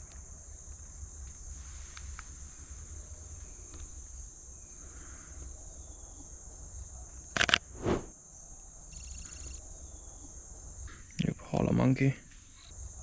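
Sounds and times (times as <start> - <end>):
insects droning: 8.9 - 9.6.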